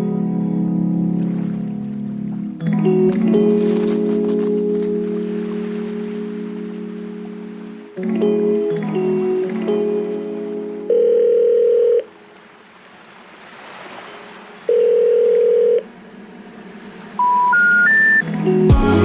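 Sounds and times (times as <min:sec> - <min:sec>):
music: 0:00.0 - 0:11.0, 0:18.2 - 0:19.0
long ringback beeps: 0:14.7 - 0:15.8, 0:17.2 - 0:18.2
short rising beeps: 0:17.2 - 0:18.2.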